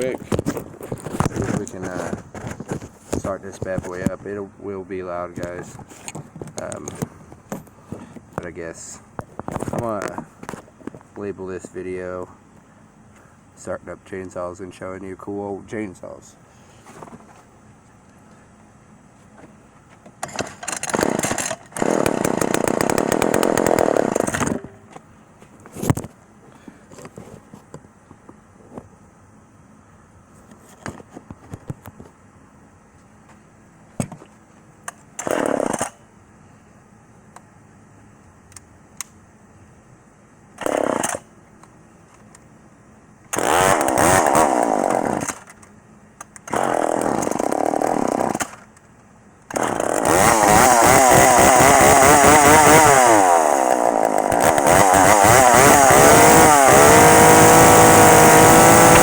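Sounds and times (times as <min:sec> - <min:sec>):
chainsaw being pull-started: 0:00.4 - 0:03.3, 0:20.2 - 0:24.7, 0:35.2 - 0:36.0, 0:40.6 - 0:41.2, 0:43.3 - 0:45.6, 0:46.4 - 0:48.7, 0:49.5 - 0:59.0
chainsaw engine running: 0:01.0 - 0:04.0, 0:20.7 - 0:24.7, 0:35.2 - 0:36.0, 0:40.6 - 0:41.2, 0:43.3 - 0:45.5, 0:46.5 - 0:48.6, 0:49.5 - 0:59.0.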